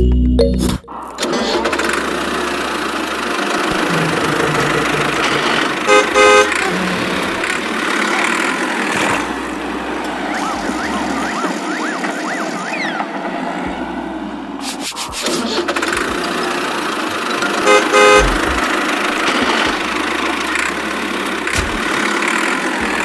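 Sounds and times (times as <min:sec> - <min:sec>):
vehicle engine running: 0:01.0 - 0:23.0
short horn toots: 0:03.7 - 0:07.1.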